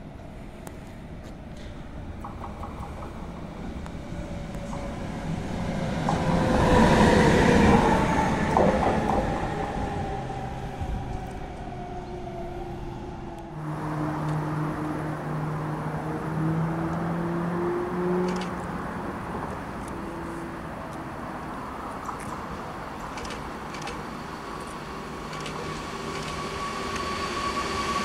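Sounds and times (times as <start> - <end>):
train passing rumble: 0.0 - 28.0
locomotive whine dropping in pitch: 2.9 - 18.4.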